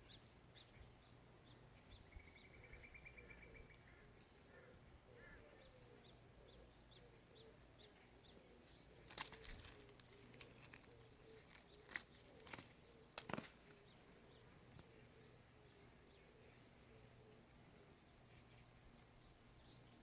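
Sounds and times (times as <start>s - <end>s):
sharp clicks or rustles: 9.0s - 13.8s.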